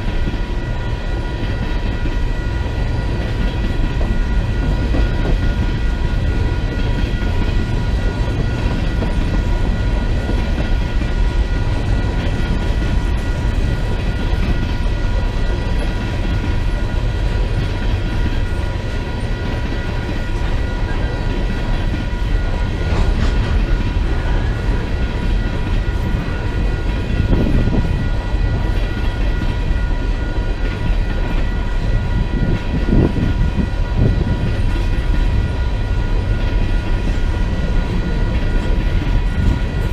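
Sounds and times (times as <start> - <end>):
high-pitched whine: 0.0 - 39.9
train wheels rumbling on rail: 0.0 - 39.9.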